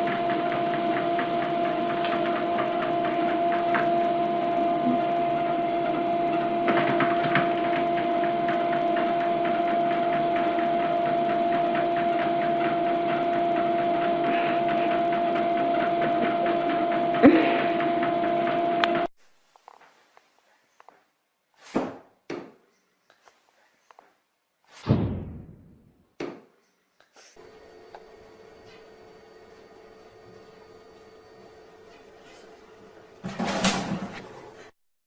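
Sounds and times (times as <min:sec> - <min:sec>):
small motor humming and rattling: 0:00.0 - 0:19.1.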